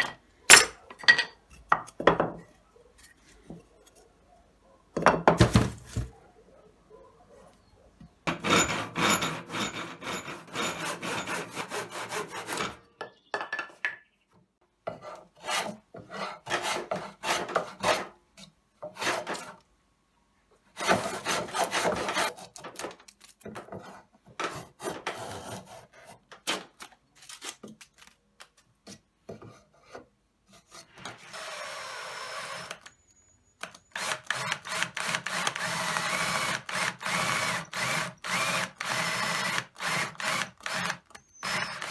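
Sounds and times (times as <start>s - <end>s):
hand tool scraping wood: 8.3s - 12.8s, 15.0s - 18.1s, 18.8s - 19.6s, 20.8s - 22.6s, 23.7s - 26.6s, 29.4s - 31.5s, 33.9s - 41.9s.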